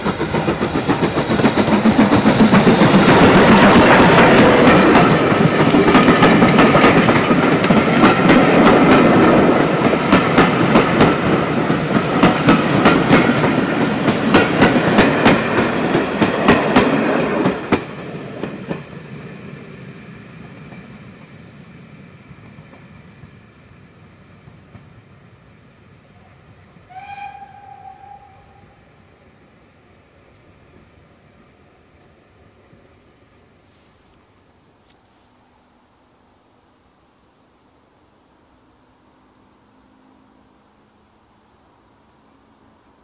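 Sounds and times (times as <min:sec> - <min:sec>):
wheels clicking over rail joints: 0:00.0 - 0:19.0.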